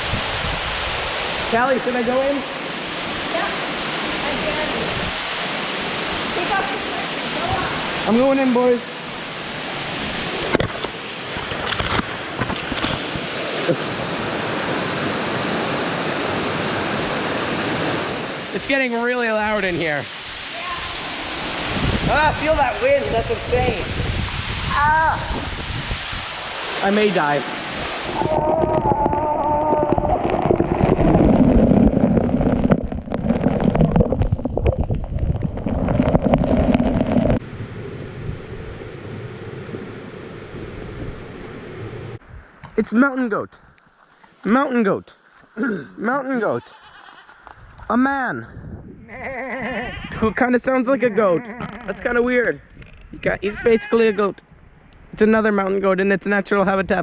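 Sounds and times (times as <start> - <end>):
wind buffeting microphone: 0.0 - 1.5, 20.3 - 26.7, 27.6 - 42.8, 47.5 - 50.4
waterfall rushing: 0.0 - 11.3, 13.2 - 23.9, 24.6 - 34.2
steady hiss: 18.0 - 28.2, 42.2 - 48.4.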